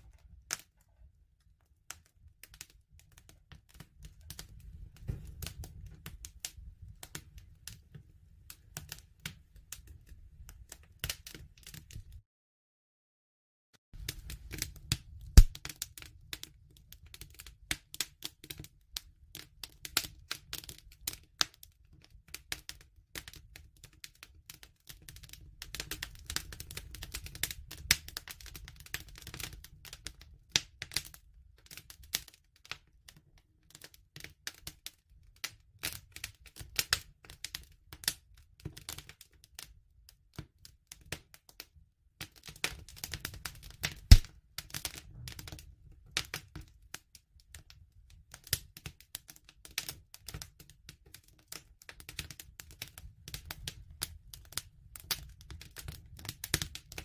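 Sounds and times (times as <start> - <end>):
wood fire crackling: 0.0 - 12.2, 14.0 - 32.9, 33.7 - 41.4, 42.2 - 57.0
loud pop of fire: 15.3 - 15.7, 43.9 - 44.3.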